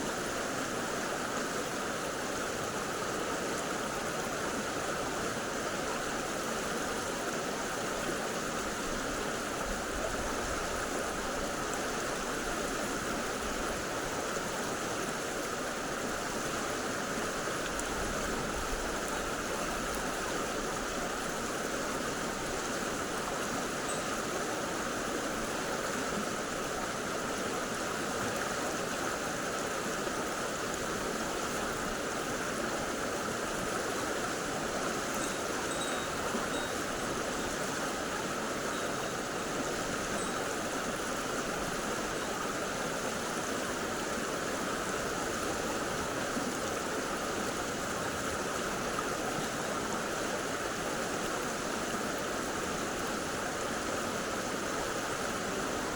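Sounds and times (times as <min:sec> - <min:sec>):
stream rushing over rocks: 0:00.0 - 0:55.9.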